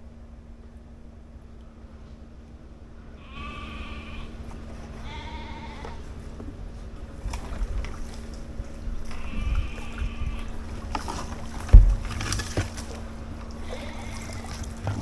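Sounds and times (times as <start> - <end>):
animal bleating: 3.2 - 6.1, 9.1 - 10.7, 13.5 - 15.0
wind rumbling on microphone: 6.6 - 13.5
sharp knocks: 11.7 - 12.7.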